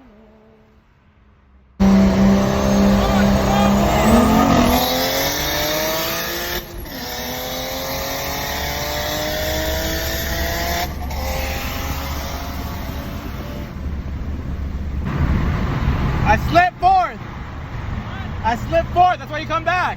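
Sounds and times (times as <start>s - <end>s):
gear upshifts: 1.8s - 15.4s
car engine accelerating hard: 1.8s - 19.9s.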